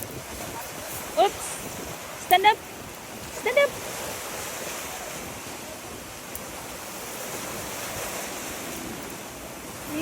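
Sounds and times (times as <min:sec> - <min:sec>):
waves breaking on a beach: 0:00.0 - 0:10.0.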